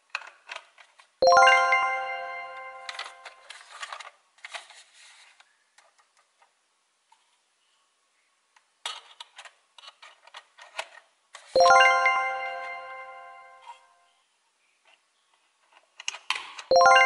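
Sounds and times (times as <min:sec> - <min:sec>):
plastic toy parts clicking: 0:00.1 - 0:01.1, 0:08.8 - 0:11.5, 0:15.6 - 0:16.7.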